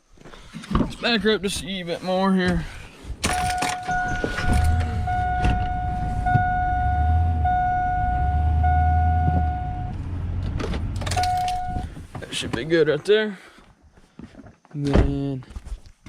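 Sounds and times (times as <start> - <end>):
truck engine rumbling: 3.3 - 12.5
electronic reversing warning tone: 3.5 - 10.2.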